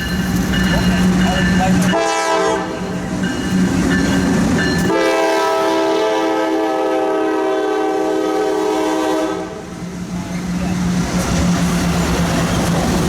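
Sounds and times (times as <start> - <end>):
freight train passing: 0.0 - 13.0
locomotive air horn: 1.9 - 2.8, 4.9 - 9.6.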